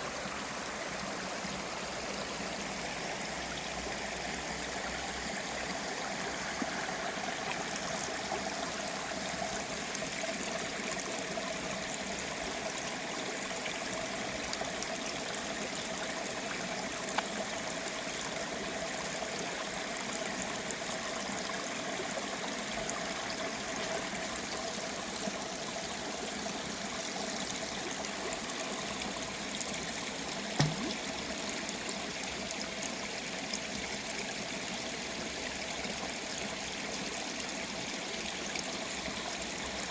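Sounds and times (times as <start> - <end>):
stream flowing: 0.0 - 39.9
brief knock: 30.6 - 31.1.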